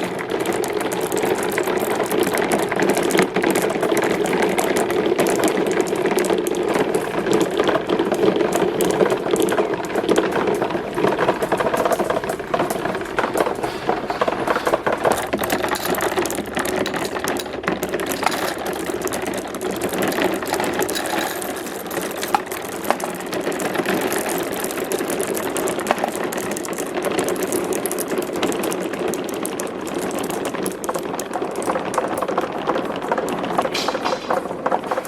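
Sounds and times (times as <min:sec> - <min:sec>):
marbles rolling down track: 0:00.0 - 0:35.0.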